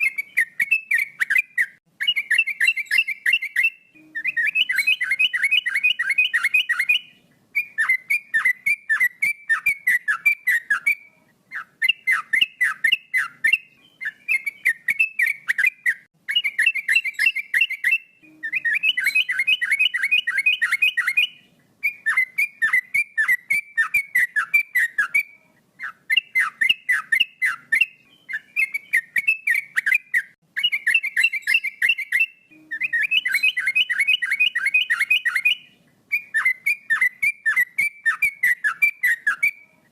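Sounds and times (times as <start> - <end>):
bulbul singing whistled notes: 0.0 - 39.9.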